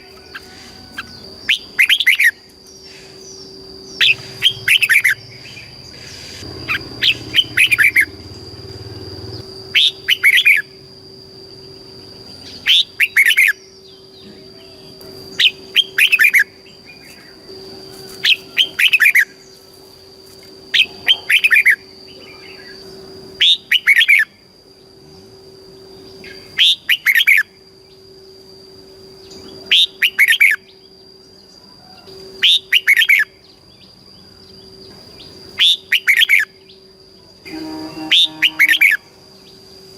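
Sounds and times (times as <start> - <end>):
bird chirping song: 0.0 - 10.8, 11.5 - 19.7, 20.7 - 25.0, 29.2 - 39.7
faint high-pitched tone: 37.1 - 39.6.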